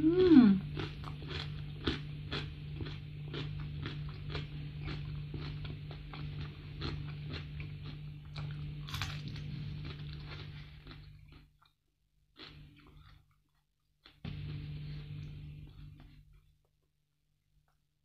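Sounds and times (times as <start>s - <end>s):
bite into crispy fried fish: 0.0s - 11.5s
steady low hum: 0.0s - 11.6s, 14.2s - 16.6s
chewing crunchy food: 0.5s - 16.9s.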